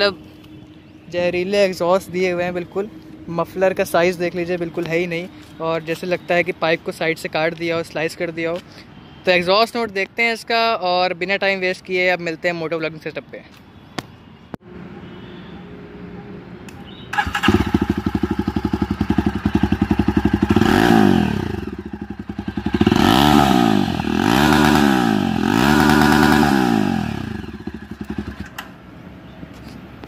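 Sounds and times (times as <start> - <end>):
motorcycle engine starting and revving: 17.0 - 28.9.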